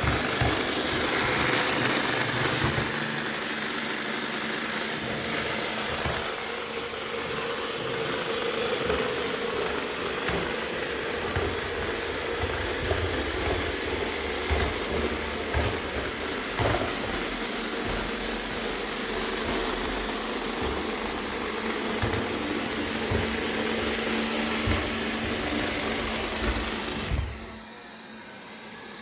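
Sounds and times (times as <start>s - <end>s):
robot vacuum motor whirring: 0.0s - 29.0s
low grinding knocks: 10.4s - 27.6s.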